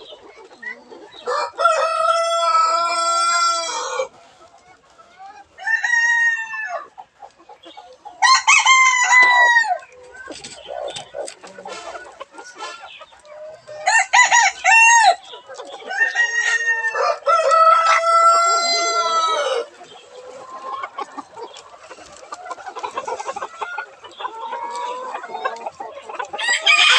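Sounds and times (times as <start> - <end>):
chickens clucking: 0.0 - 26.9
rooster crowing: 1.3 - 4.1, 13.8 - 15.2, 15.9 - 19.7.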